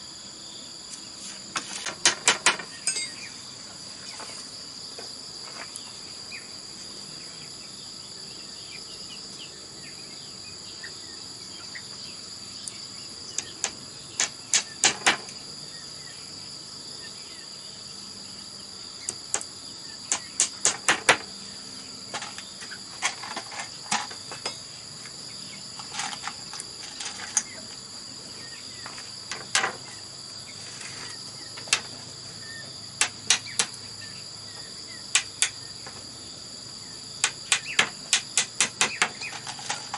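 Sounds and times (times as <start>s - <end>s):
high-pitched insect chorus: 0.0s - 39.9s
sharp knocks: 14.2s - 15.3s, 20.1s - 21.3s, 37.2s - 39.4s.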